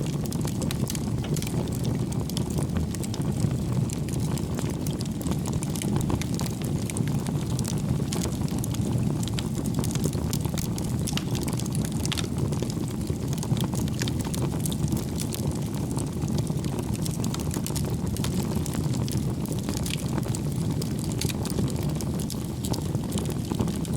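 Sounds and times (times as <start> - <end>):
low rush of flames: 0.0 - 23.9
wood fire crackles and pops: 0.0 - 23.9.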